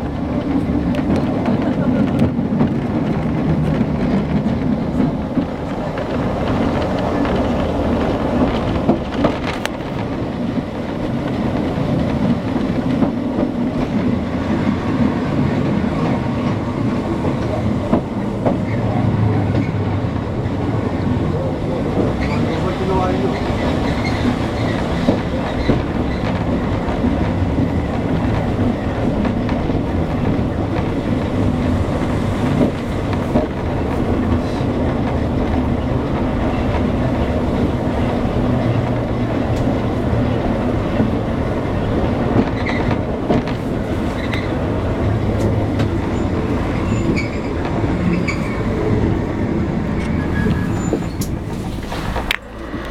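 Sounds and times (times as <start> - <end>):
tram running hum: 0.0 - 52.9
wheels clacking over rails: 0.0 - 52.9
wheel squeaks: 46.0 - 48.8, 49.9 - 52.2.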